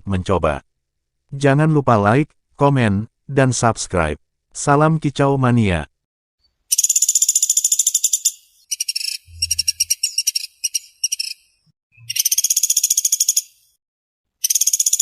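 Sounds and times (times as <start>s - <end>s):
woodpecker trilling: 6.7s - 13.8s, 14.4s - 15.0s.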